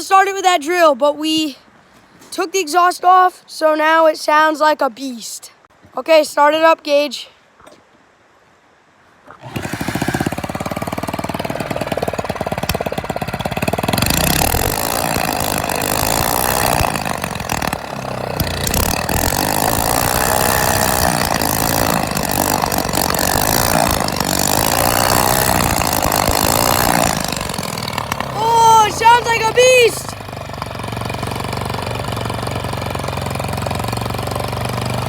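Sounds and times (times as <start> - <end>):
engine running without exhaust pipe: 9.4 - 35.0.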